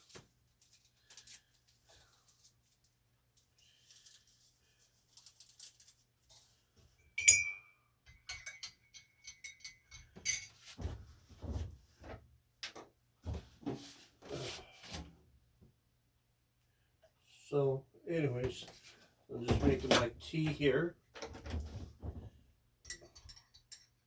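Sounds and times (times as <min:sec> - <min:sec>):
light kitchenware clicks: 0:07.2 - 0:10.6, 0:22.9 - 0:24.0
mug or spoon clinking: 0:07.2 - 0:10.6.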